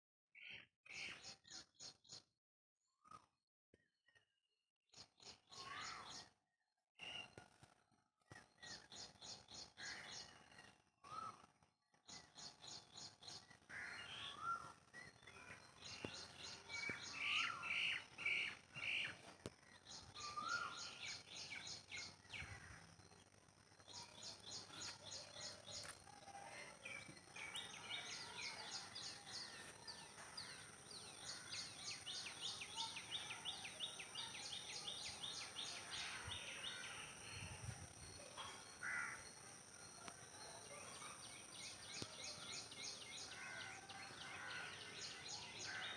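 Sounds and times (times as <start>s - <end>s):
birds chirping and whistling: 12.2s - 19.2s, 19.8s - 22.6s.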